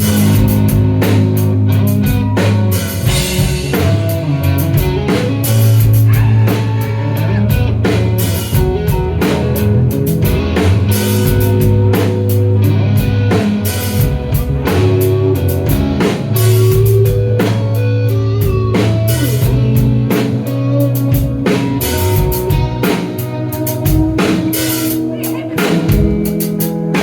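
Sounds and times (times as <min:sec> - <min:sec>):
bass guitar: 0:00.0 - 0:27.0
drum kit and cymbals: 0:00.0 - 0:27.0
electric guitars: 0:00.0 - 0:27.0.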